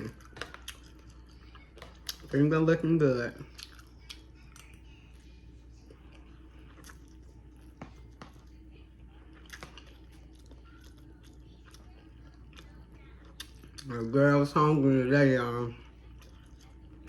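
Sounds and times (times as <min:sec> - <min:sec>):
person chewing food: 0:00.0 - 0:14.6, 0:15.6 - 0:17.0.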